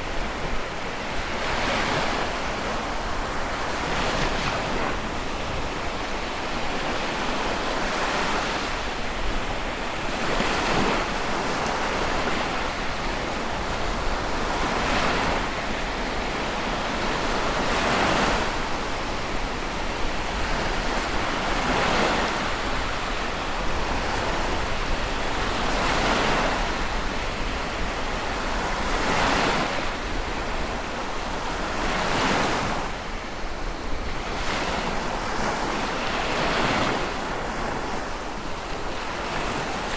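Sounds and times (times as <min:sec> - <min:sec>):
sea waves breaking: 0:00.0 - 0:39.9.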